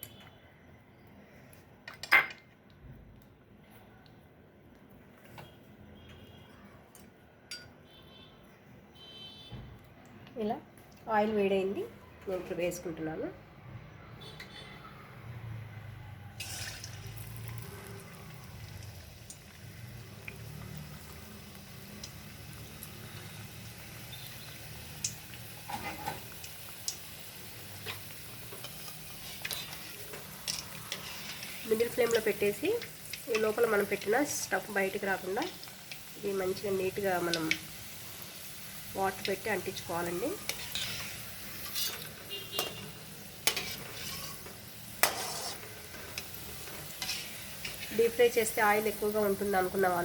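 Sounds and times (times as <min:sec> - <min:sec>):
deep-frying in hot oil sizzling: 0:16.3 - 0:50.0
oil crackling and popping: 0:16.4 - 0:50.0.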